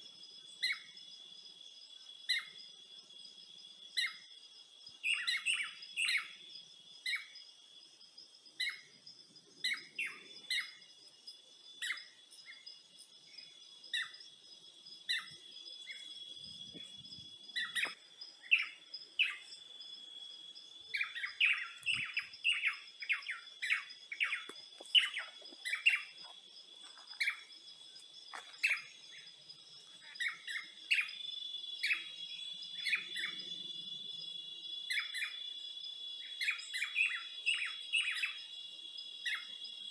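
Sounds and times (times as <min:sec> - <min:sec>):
high insect drone: 0:00.0 - 0:39.9
birds chirping: 0:14.9 - 0:19.9, 0:20.5 - 0:33.6.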